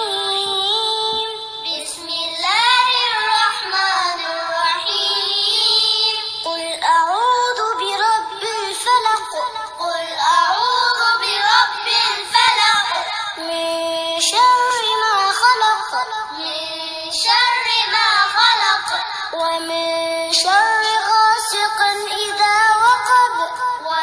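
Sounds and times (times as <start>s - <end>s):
person chanting melodic recitation: 0.0s - 24.0s.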